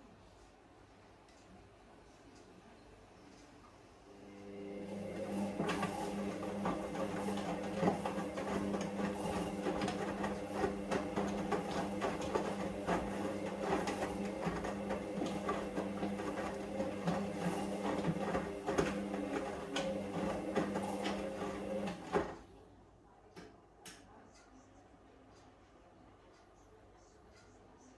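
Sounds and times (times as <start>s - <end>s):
washing machine motor hum: 4.2s - 22.6s
washing machine clicks and rattles: 5.1s - 22.4s.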